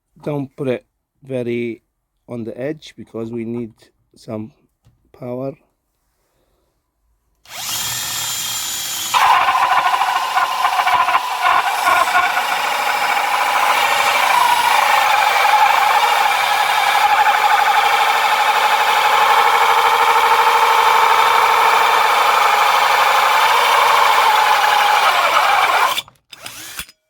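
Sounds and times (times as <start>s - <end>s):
power drill boring into wood: 7.5s - 26.9s.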